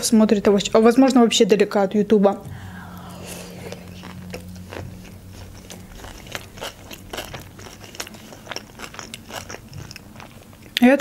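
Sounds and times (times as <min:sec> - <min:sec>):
chewing with mouth clicks: 0:02.9 - 0:11.0.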